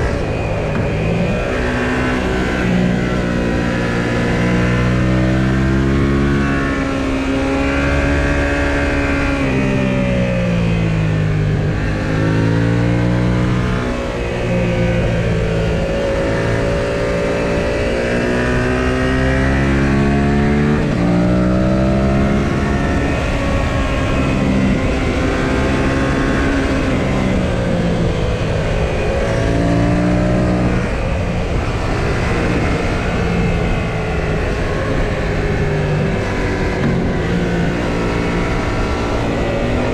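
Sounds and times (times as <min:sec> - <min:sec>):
motorcycle engine accelerating: 0:00.0 - 0:39.9
wind rush: 0:19.4 - 0:39.9.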